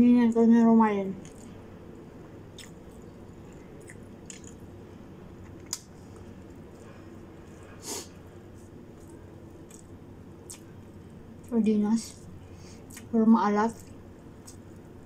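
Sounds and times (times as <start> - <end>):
steady low hum: 0.0 - 15.0
person chewing: 1.2 - 1.6, 2.5 - 4.7, 5.4 - 7.6, 8.5 - 10.8, 12.9 - 13.1, 13.8 - 14.8
small clicks and smacks: 2.5 - 4.6.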